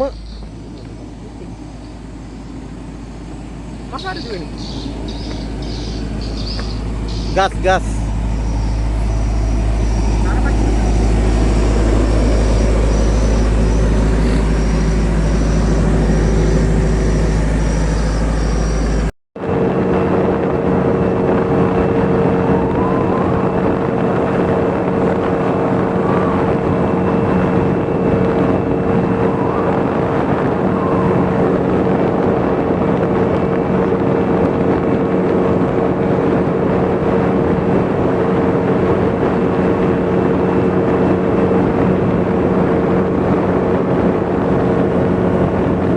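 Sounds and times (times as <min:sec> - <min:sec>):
engine droning: 0:00.0 - 0:45.9.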